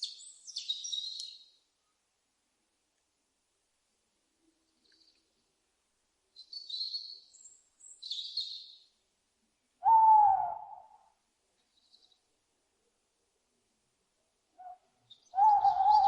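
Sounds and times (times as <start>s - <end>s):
owl low hoot: 9.8s - 11.2s, 14.6s - 16.0s.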